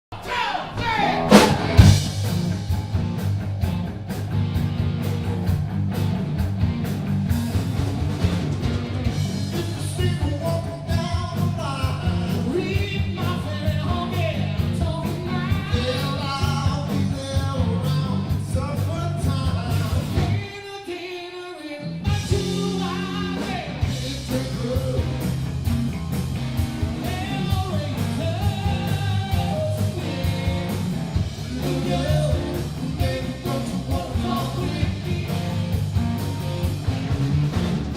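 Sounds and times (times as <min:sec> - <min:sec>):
drums: 0:00.0 - 0:37.9
person singing lead vocal: 0:00.1 - 0:01.8, 0:09.5 - 0:25.4, 0:27.0 - 0:35.9
southern rock song: 0:00.3 - 0:37.9
bass guitar: 0:00.8 - 0:20.5, 0:21.8 - 0:37.9
electric guitar: 0:00.8 - 0:20.5, 0:21.7 - 0:37.9.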